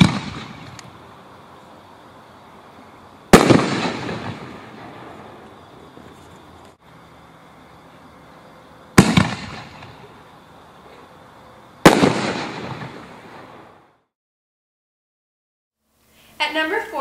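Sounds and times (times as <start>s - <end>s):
aerial firework shell bursts: 0.0s - 0.8s, 3.3s - 5.5s, 9.0s - 10.1s, 11.8s - 13.8s.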